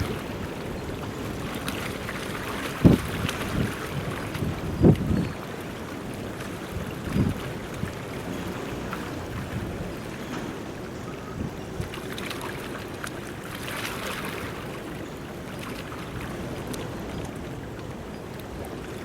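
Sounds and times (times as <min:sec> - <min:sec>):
wind noise on microphone: 0:00.0 - 0:12.8
ship engine rumble: 0:00.0 - 0:19.0
water wash: 0:00.0 - 0:19.0.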